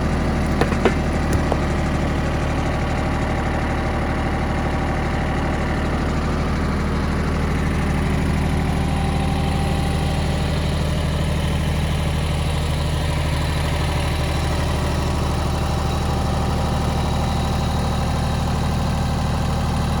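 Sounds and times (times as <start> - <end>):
tractor diesel engine running: 0.0 - 18.4.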